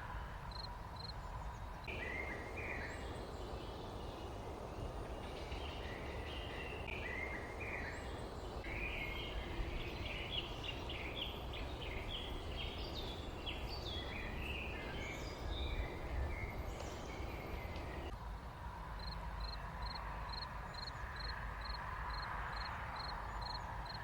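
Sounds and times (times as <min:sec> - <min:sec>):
songbirds chirping: 0:00.0 - 0:18.2
low outdoor rumble: 0:01.2 - 0:19.4.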